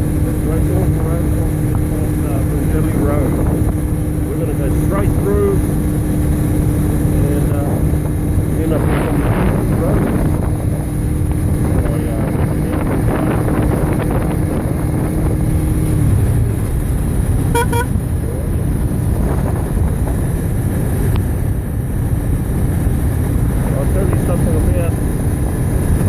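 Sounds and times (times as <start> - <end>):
engine hum: 0.0 - 26.0
road traffic noise: 0.0 - 26.0
wind on microphone: 0.0 - 26.0
short high beeps: 17.5 - 17.9.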